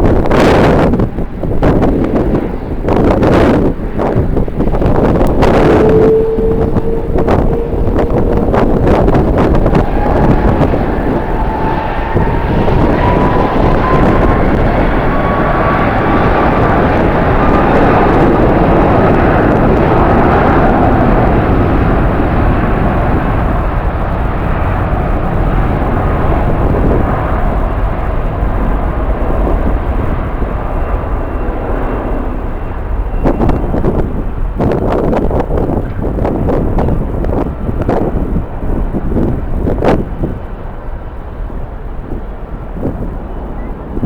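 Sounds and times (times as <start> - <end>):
jet engine noise: 0.0 - 44.0
turbine whine: 0.0 - 44.0
wind gusts on microphone: 0.0 - 44.0.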